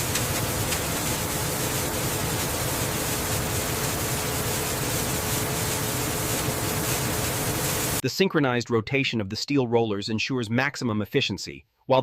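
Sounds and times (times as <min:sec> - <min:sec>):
machinery hiss: 0:00.0 - 0:08.0
mid-pitched machinery hum: 0:00.0 - 0:08.0.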